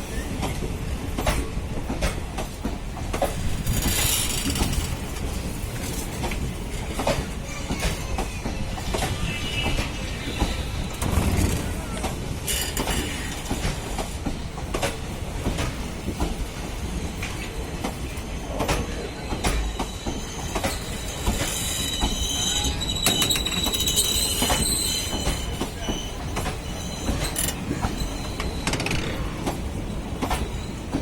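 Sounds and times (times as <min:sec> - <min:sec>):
train rumble: 0:00.0 - 0:31.0
train wheels clicking over rail joints: 0:00.1 - 0:31.0
high wheel squeal: 0:19.6 - 0:29.6.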